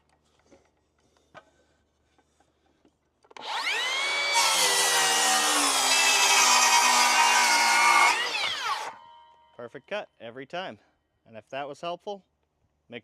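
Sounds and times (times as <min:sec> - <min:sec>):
saw blade cutting wood: 0:03.4 - 0:09.2
circular saw motor whine: 0:03.4 - 0:09.4.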